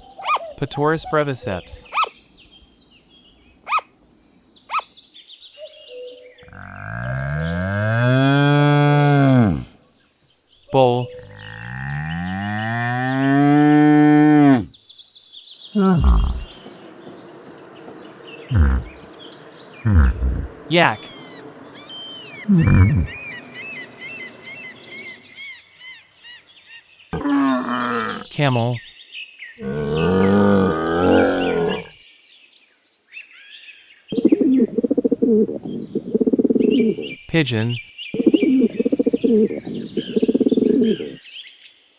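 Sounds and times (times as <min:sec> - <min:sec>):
bull bellowing: 0:11.2 - 0:14.7, 0:15.8 - 0:16.5, 0:18.5 - 0:19.1, 0:19.8 - 0:20.6, 0:22.4 - 0:23.3, 0:29.6 - 0:31.9, 0:38.5 - 0:41.2
faint bird chirps: 0:15.6 - 0:29.0, 0:33.4 - 0:41.3
low rapidly pulsing call: 0:17.6 - 0:25.4, 0:34.2 - 0:41.2.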